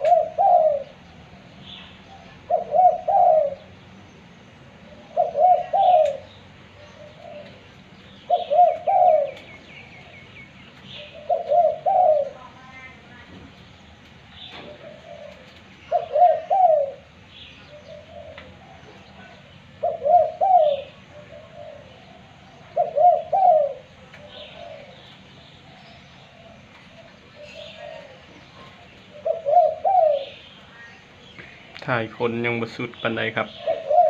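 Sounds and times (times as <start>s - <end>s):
dove cooing: 0.0s - 4.0s, 4.6s - 13.4s, 14.2s - 34.0s
small birds chirping: 0.0s - 34.0s.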